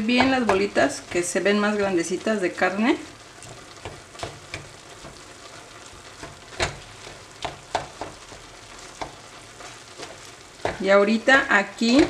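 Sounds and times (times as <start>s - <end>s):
meat sizzling in a pan: 0.0s - 12.0s
wooden spatula scraping pan: 3.4s - 11.1s.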